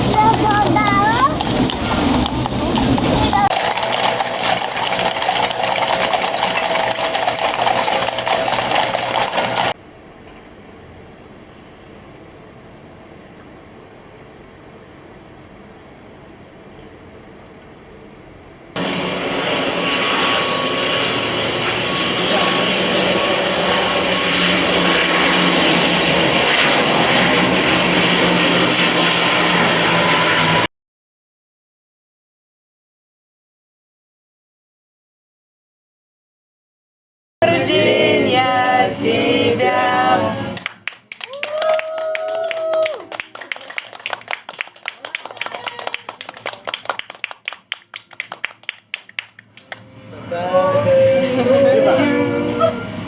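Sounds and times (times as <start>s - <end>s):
aircraft engines running: 0.0s - 16.6s, 18.6s - 30.7s, 37.4s - 53.0s
dense clattering clicks and knocks: 1.4s - 9.8s.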